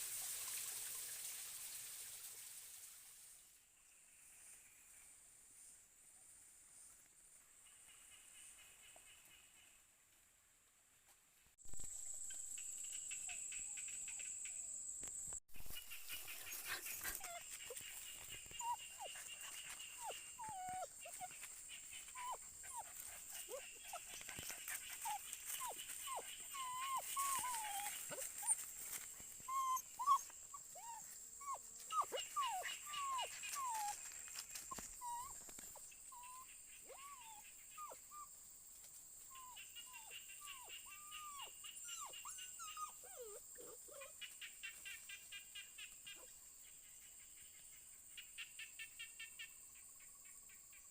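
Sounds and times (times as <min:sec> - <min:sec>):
puppies whimpering: 0:16.5 - 0:28.6, 0:29.4 - 0:34.0, 0:34.7 - 0:38.2, 0:39.4 - 0:44.1.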